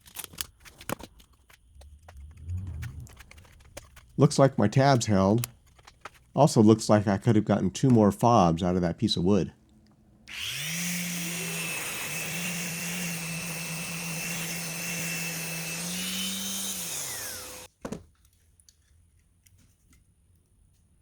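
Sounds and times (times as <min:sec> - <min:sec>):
faint clicks: 0:00.1 - 0:06.3
electric motor whining: 0:01.8 - 0:03.7, 0:10.3 - 0:17.7.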